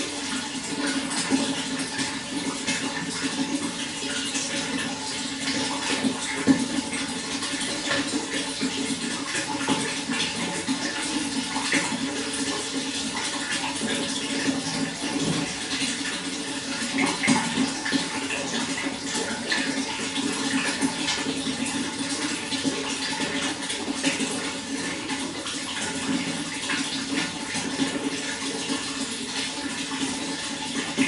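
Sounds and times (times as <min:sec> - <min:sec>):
running water splashing: 0:00.0 - 0:31.0.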